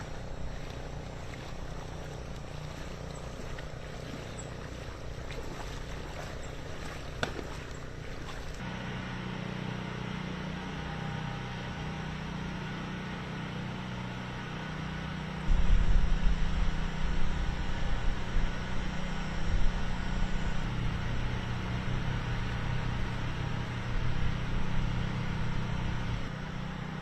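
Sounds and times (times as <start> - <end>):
deep hum: 0.0 - 8.6
engine running: 0.0 - 27.0.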